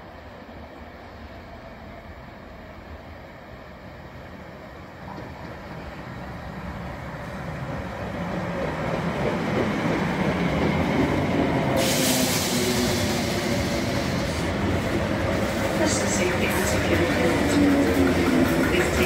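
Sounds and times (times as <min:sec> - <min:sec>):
train running rumble: 0:04.9 - 0:19.0
train hiss: 0:11.6 - 0:16.9.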